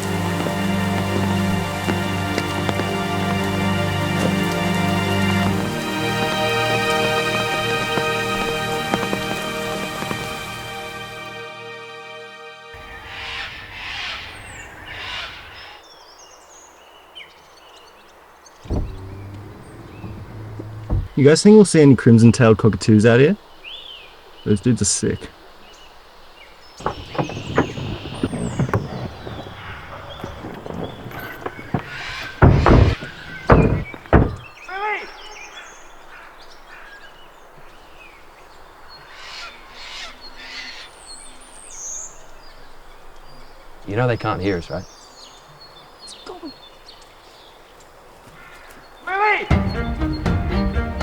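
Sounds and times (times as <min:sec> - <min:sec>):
small birds chirping: 0:00.0 - 0:10.8, 0:12.8 - 0:51.0
short loud bird calls: 0:12.8 - 0:15.8, 0:26.8 - 0:38.2, 0:38.9 - 0:42.8
low thump: 0:18.6 - 0:21.2, 0:26.8 - 0:34.5.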